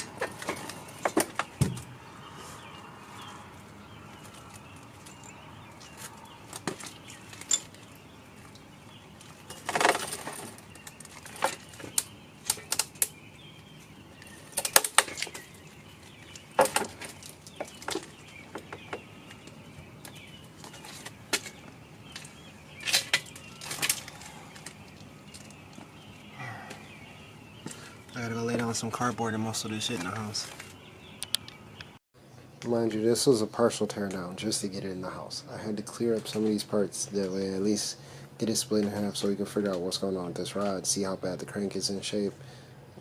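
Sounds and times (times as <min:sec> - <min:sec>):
scraping and rustling: 0:04.1 - 0:13.1.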